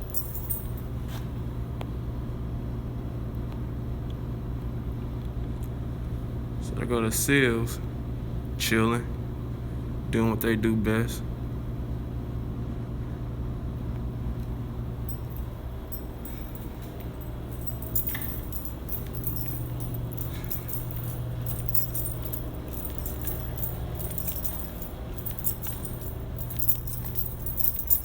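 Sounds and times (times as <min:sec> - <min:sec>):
keys jangling: 0:00.0 - 0:01.2, 0:15.1 - 0:28.0
low hum: 0:15.1 - 0:28.0.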